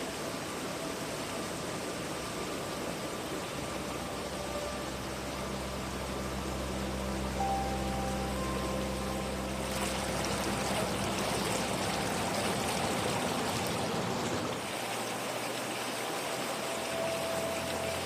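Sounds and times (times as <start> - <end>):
water rushing and splashing: 0.0 - 18.0.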